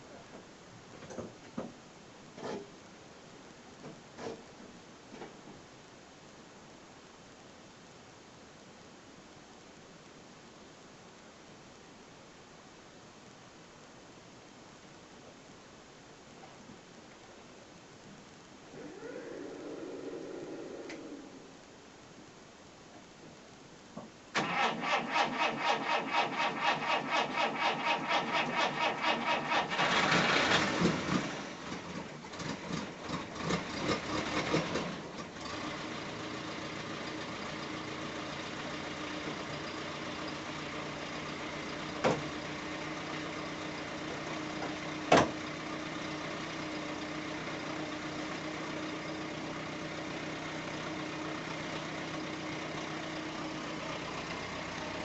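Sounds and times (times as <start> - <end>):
car engine idling: 24.4 - 55.0.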